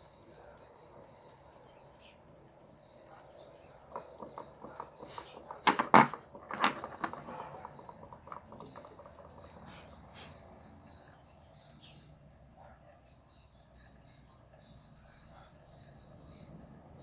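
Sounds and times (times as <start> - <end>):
clicks and knocks of handling: 3.8 - 9.8.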